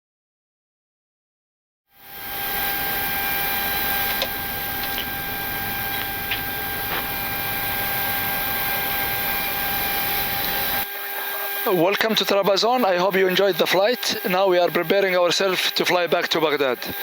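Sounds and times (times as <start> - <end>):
electrical whine: 2.0 - 11.8
air-conditioning hiss: 2.1 - 10.8.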